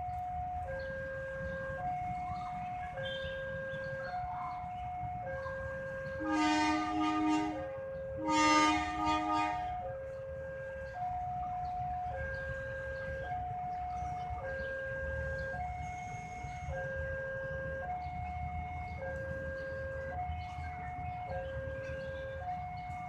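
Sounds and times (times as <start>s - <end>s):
train horn blasts: 6.0s - 9.9s.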